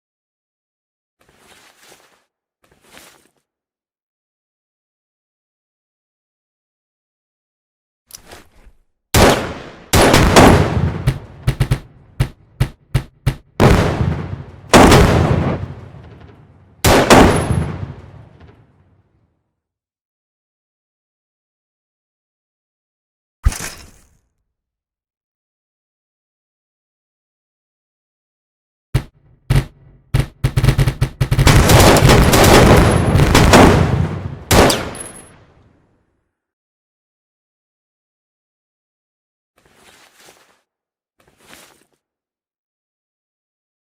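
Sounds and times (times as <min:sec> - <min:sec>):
gunfire: 0:09.2 - 0:18.6, 0:29.0 - 0:35.4
gunshots with echoing tails: 0:09.2 - 0:18.7, 0:29.0 - 0:35.5.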